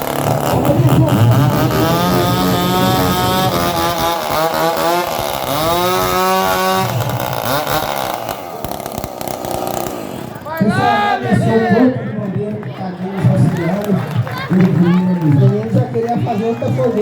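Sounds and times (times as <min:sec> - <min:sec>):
engine revving: 0:00.0 - 0:11.1.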